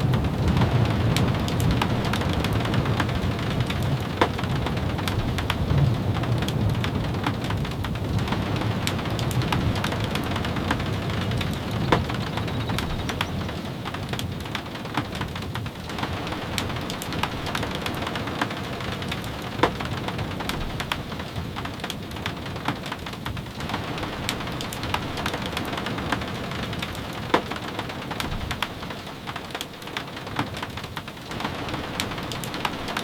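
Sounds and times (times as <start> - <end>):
steady rain falling: 0.0 - 33.0
sharp ticks and pops: 7.2 - 15.3.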